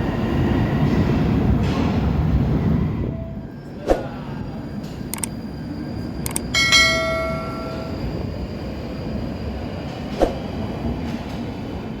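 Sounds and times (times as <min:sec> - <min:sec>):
train rumbling: 0:00.0 - 0:12.0
sharp click: 0:06.3 - 0:06.5
short ringing tone: 0:06.3 - 0:08.1.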